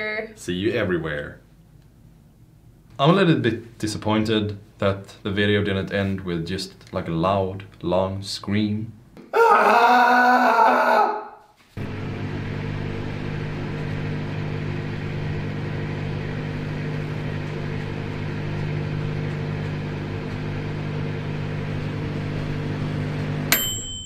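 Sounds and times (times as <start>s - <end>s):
microwave oven humming: 11.8s - 24.0s
microwave ringing ding: 23.5s - 24.0s.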